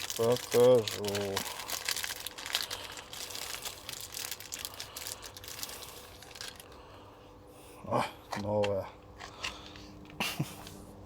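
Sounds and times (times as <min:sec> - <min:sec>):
packaging crinkling and rustling: 0:00.0 - 0:06.8.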